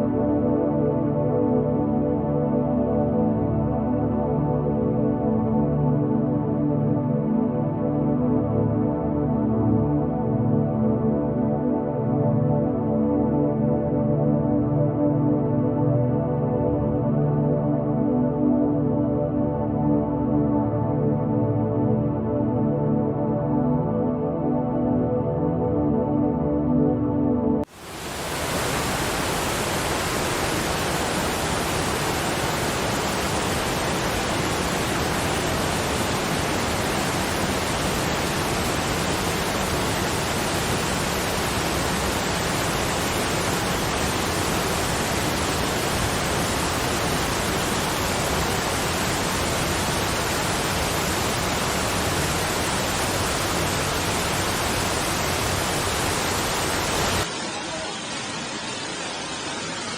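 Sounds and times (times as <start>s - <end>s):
waterfall rushing: 27.7s - 59.9s.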